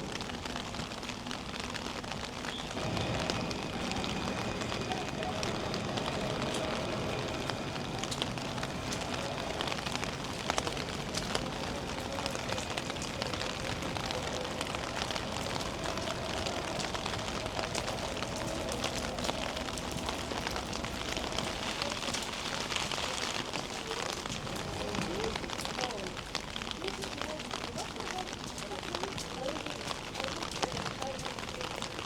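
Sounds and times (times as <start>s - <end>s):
raindrops ticking on surfaces: 0.0s - 32.0s
steady rain hiss: 0.0s - 32.0s.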